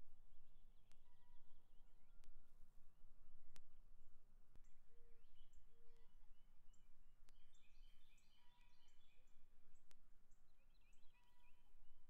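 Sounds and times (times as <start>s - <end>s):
small birds chirping: 4.5s - 11.8s.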